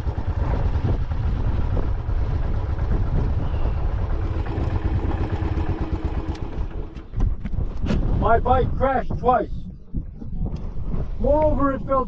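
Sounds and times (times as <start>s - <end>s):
motorcycle engine rumbling: 0.0s - 8.4s.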